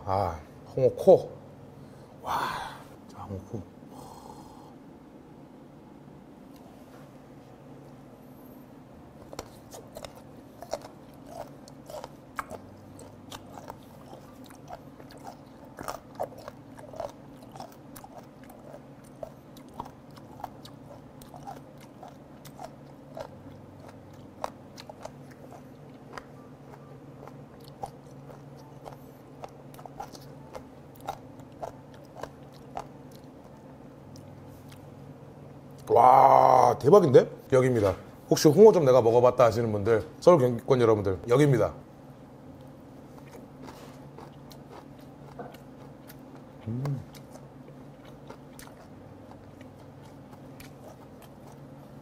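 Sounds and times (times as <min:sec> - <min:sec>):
crunchy chewing: 0:09.1 - 0:35.9, 0:42.5 - 0:52.0.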